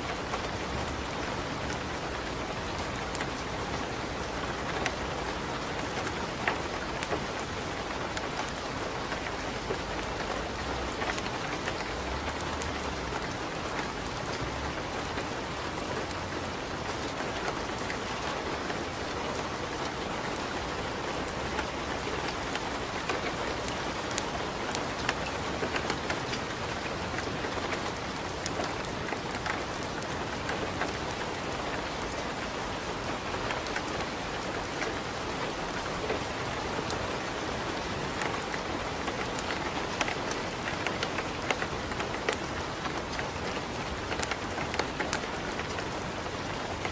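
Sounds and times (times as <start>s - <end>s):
steady rain: 0.0s - 46.9s
wood fire crackling and popping: 4.6s - 14.4s, 21.5s - 32.1s, 38.1s - 46.9s.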